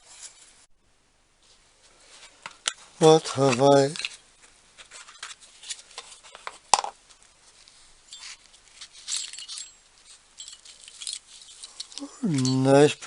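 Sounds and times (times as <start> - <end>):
small metal parts clinking: 8.1 - 13.0.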